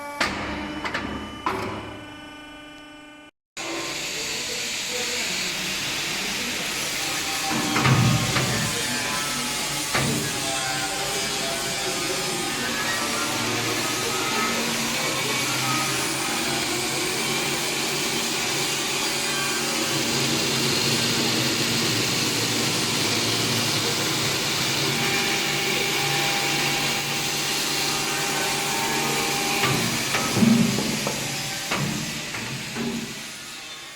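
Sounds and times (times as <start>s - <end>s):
electric chain saw whining: 1.2s - 33.9s.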